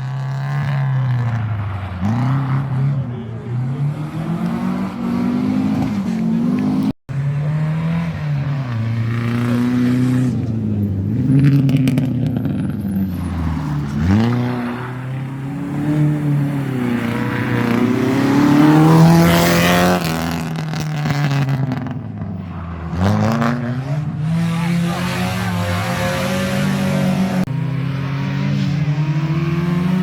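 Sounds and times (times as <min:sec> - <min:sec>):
rally car engine revving past: 0:00.2 - 0:30.0.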